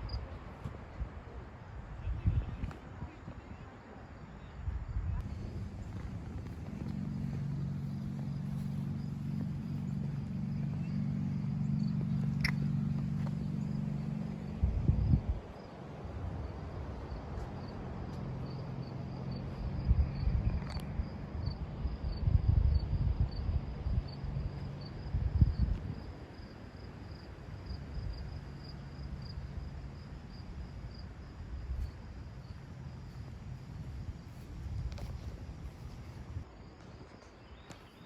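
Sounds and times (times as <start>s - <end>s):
insects chirping: 0.0s - 38.0s
low rumble: 4.8s - 15.6s.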